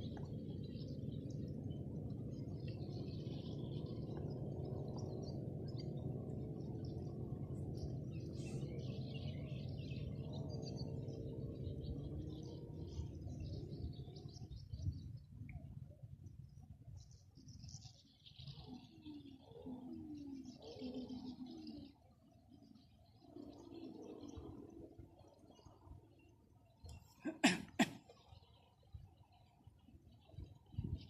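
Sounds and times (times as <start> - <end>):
steady low hum: 0.0 - 31.0
birds chirping and calling: 2.7 - 15.0.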